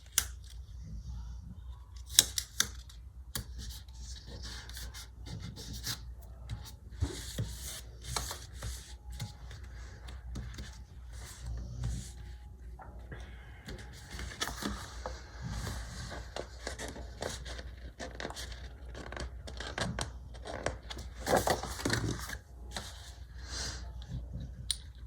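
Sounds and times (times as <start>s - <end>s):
stickers peeling: 1.9s - 12.4s
paper rustling and scraping: 3.5s - 12.4s, 13.7s - 23.3s.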